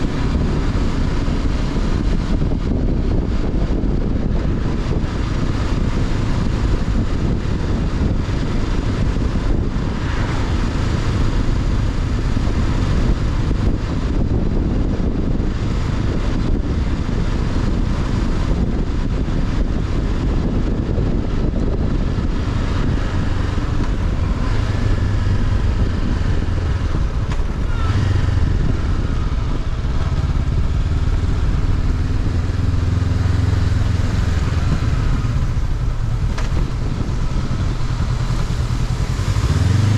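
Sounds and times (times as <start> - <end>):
motorcycle engine running: 0.0 - 39.9
road noise: 0.0 - 39.9
wind noise: 0.0 - 39.9.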